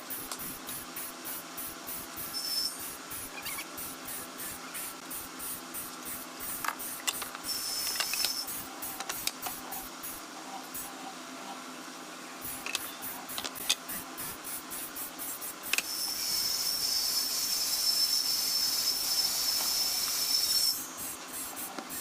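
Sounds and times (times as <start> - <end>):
rhythmic hissing strokes: 0.0 - 11.2, 12.4 - 22.0
steady low hum: 0.0 - 16.2.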